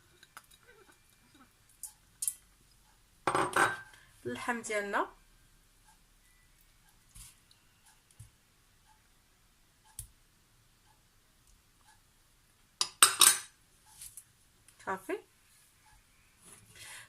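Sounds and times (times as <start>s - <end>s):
utensils and pot clinking: 3.3s - 4.0s, 12.8s - 13.5s.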